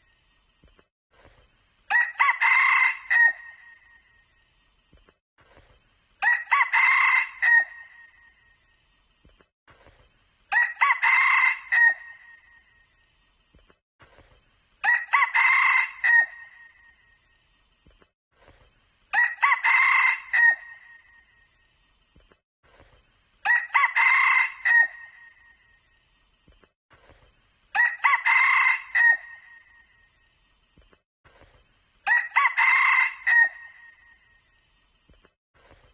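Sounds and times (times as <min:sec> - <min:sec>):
rooster crowing: 0:01.9 - 0:03.6, 0:06.2 - 0:07.9, 0:10.5 - 0:12.3, 0:14.8 - 0:16.6, 0:19.2 - 0:20.9, 0:23.4 - 0:25.3, 0:27.8 - 0:29.6, 0:32.1 - 0:34.0.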